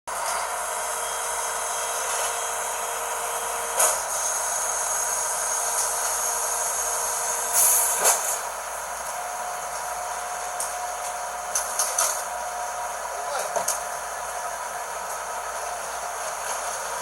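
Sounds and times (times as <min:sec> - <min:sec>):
garbage truck mechanical running: 0:00.1 - 0:17.0
short bursts of hiss: 0:06.9 - 0:08.4.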